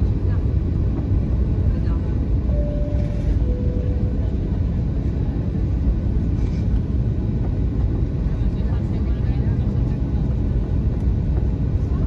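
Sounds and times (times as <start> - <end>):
airplane cabin engine rumble: 0.0 - 12.0
two-tone cabin chime: 2.5 - 4.4.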